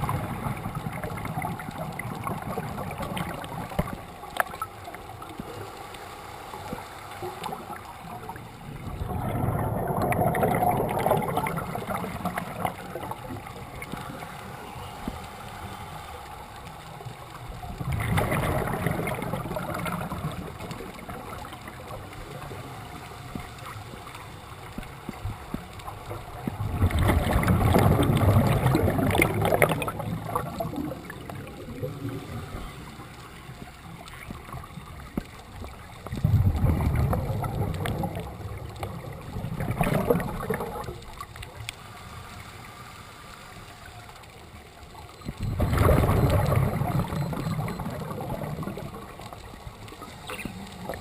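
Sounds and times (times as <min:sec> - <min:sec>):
diver's exhaled bubbles gurgling: 0:00.0 - 0:05.6, 0:06.7 - 0:15.2, 0:17.2 - 0:24.0, 0:24.7 - 0:41.6, 0:45.0 - 0:51.0
underwater hiss: 0:08.7 - 0:20.4, 0:41.8 - 0:43.9.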